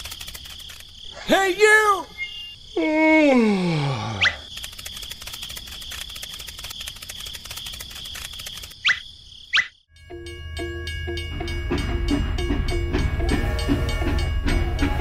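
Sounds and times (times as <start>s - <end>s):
cricket chirring: 0.0s - 12.2s
music with percussive beat: 10.0s - 15.0s.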